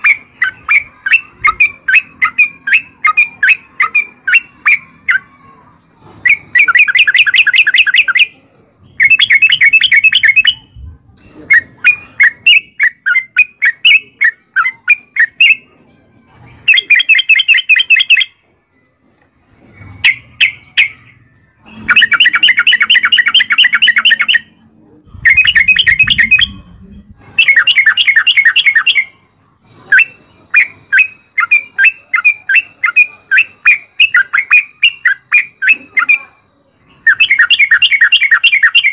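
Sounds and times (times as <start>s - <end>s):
bird chirps: 0.0s - 5.4s, 6.2s - 38.9s
bird singing bubbling rolls: 21.8s - 29.1s.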